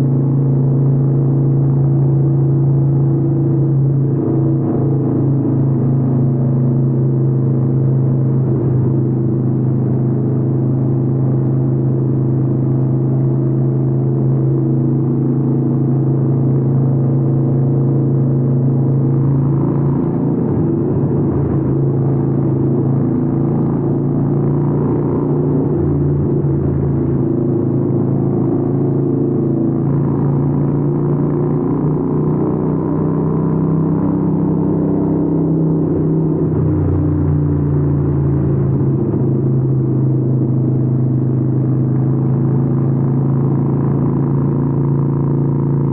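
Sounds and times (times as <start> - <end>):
motorcycle engine cruising: 0.0 - 45.9.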